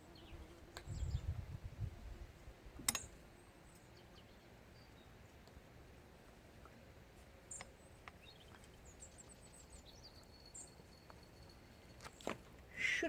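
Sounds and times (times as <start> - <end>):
faint bird chirps: 7.5 - 13.0.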